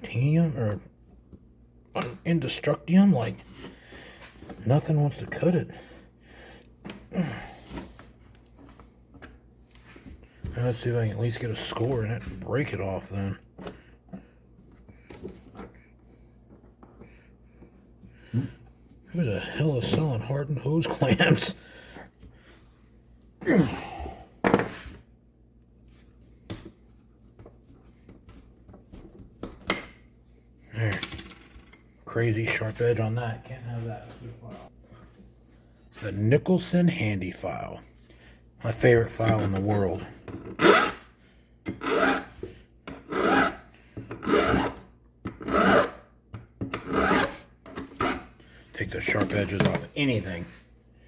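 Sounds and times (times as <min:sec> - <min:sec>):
man sighing: 0:07.1 - 0:07.7, 0:23.4 - 0:24.4
short rasp: 0:40.6 - 0:41.1, 0:41.8 - 0:42.4, 0:43.1 - 0:44.8, 0:45.4 - 0:46.0, 0:46.8 - 0:48.4.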